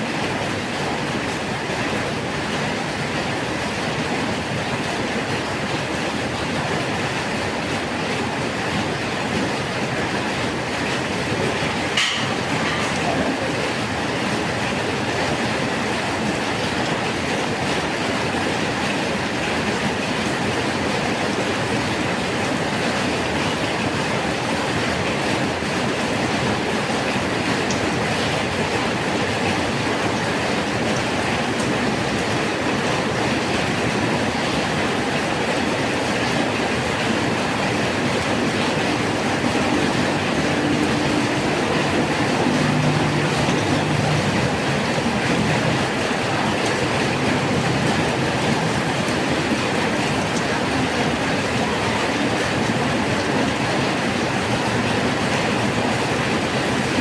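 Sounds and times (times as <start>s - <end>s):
steady rain falling: 0.0s - 57.0s
low engine-like hum: 32.9s - 57.0s.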